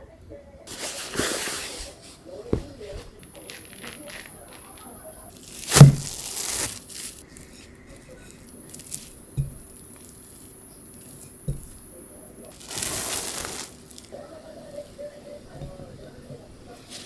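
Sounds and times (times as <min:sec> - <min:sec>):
soft thumps: 0:00.6 - 0:17.0
short rustle: 0:00.7 - 0:17.0
sharp knock: 0:05.6 - 0:06.3.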